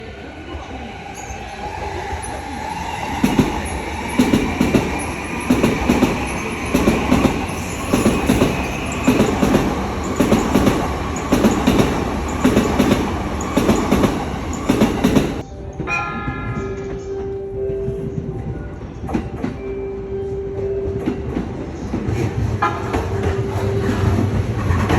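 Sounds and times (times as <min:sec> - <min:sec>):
train rumble: 0:00.0 - 0:15.5, 0:17.9 - 0:24.9
train wheels clicking over rail joints: 0:02.7 - 0:15.4.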